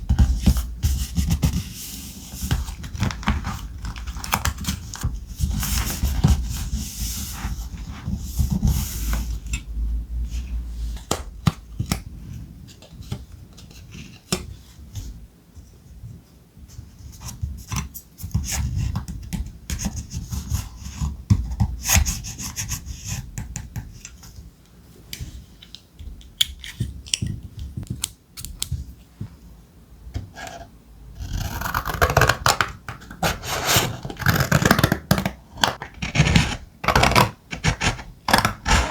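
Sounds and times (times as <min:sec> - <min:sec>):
paper rustling and scraping: 0:33.0 - 0:35.0, 0:35.7 - 0:38.9.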